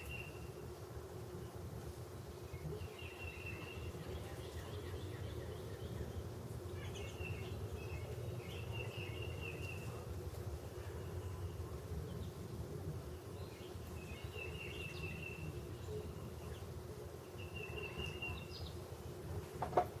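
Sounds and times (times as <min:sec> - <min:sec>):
outdoor background hum: 0:00.0 - 0:20.0.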